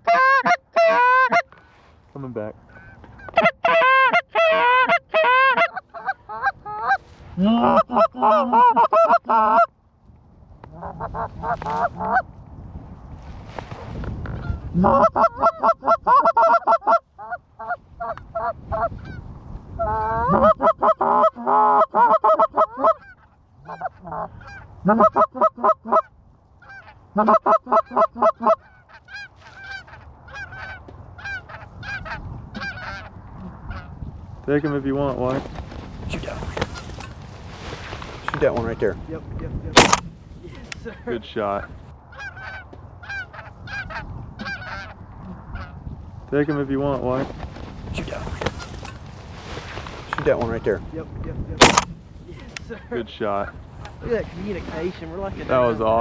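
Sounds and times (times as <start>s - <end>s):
goose call honks and clucks: 0.0s - 1.6s, 2.7s - 9.7s, 10.7s - 12.2s, 14.4s - 19.2s, 19.8s - 33.8s, 42.2s - 45.7s
low wind rumble: 9.7s - 15.6s.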